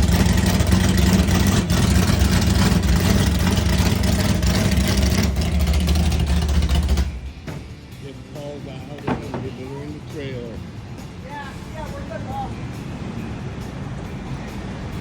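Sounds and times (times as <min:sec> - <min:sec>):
drag car engine running: 0:00.0 - 0:11.0.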